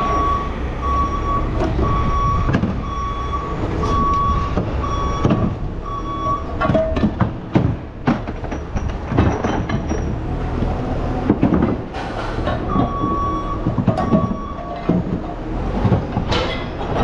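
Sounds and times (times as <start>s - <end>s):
vehicle reversing beeper: 0.0s - 6.6s, 12.6s - 14.9s
heavy machinery rumble: 0.0s - 17.0s
scrap metal clanking: 11.2s - 17.0s.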